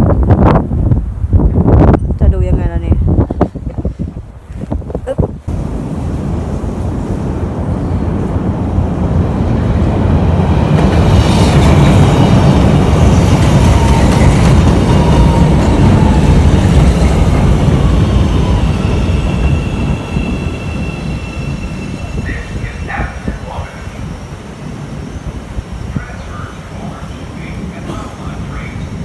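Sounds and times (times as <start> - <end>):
train passing with heavy rumble: 0.0 - 29.0.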